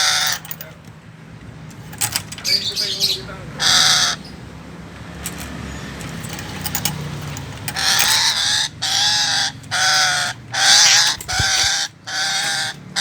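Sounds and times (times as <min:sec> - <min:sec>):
parrot harsh calls: 0:00.0 - 0:00.5, 0:02.5 - 0:04.5, 0:07.7 - 0:13.0.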